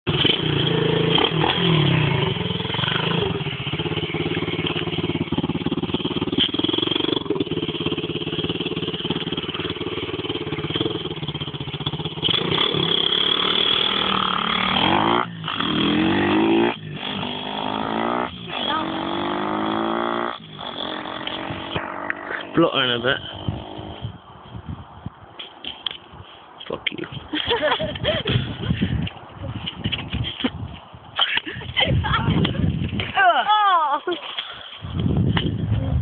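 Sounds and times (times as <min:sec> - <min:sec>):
motorbike engine revving: 0:00.1 - 0:24.2.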